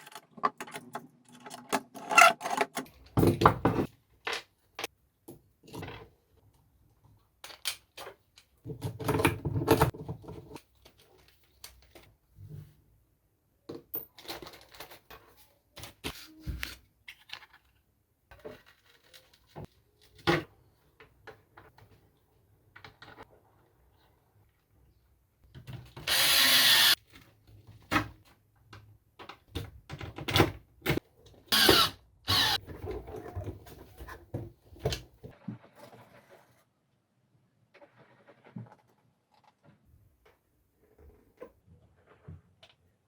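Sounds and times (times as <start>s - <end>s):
power drill bursts: 26.1s - 27.0s, 31.6s - 32.6s.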